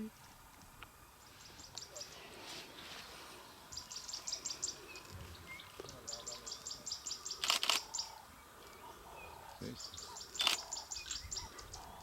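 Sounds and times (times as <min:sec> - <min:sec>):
small bird chirping: 0:03.7 - 0:08.8.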